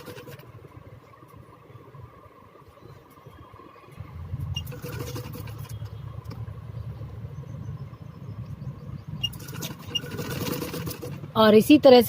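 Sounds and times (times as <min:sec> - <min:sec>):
sewing machine stitching: 0:00.0 - 0:00.5, 0:04.5 - 0:05.9, 0:09.2 - 0:11.4.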